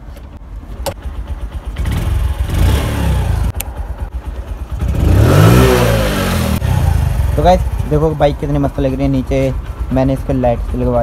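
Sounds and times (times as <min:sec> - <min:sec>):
motorcycle engine starting: 0:00.2 - 0:11.0.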